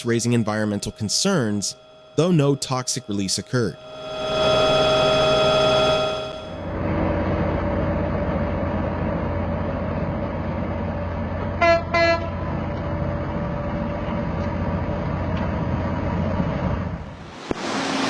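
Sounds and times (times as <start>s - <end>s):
train horn blasts: 11.6s - 12.4s.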